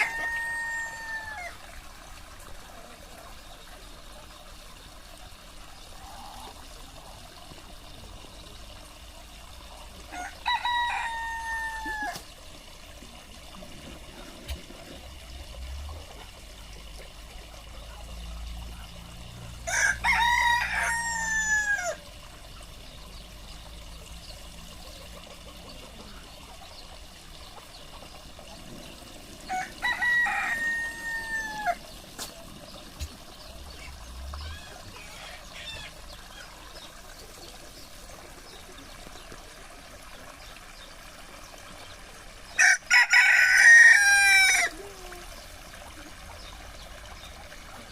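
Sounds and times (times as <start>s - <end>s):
rooster crowing: 0.0s - 1.6s, 10.1s - 12.2s, 19.6s - 22.0s, 29.5s - 31.8s, 42.6s - 44.7s.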